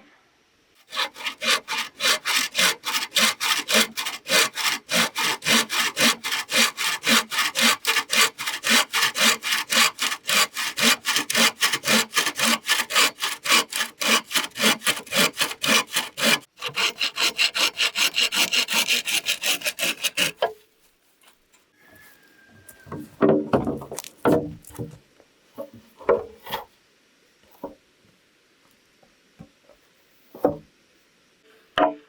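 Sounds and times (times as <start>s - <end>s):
hand saw sawing: 0.8s - 20.4s.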